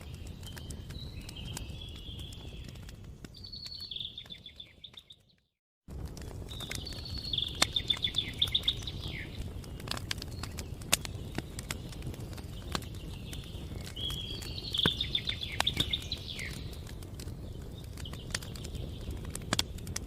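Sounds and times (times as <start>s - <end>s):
campfire crackling and popping: 0.0s - 20.0s
songbird trilling: 6.8s - 9.4s, 13.7s - 16.7s.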